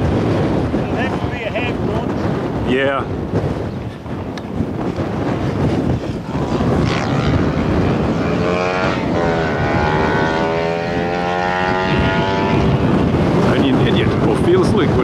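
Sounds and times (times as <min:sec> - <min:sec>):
wind buffeting microphone: 0:00.0 - 0:15.0
electric motor and propeller whine: 0:05.4 - 0:13.9.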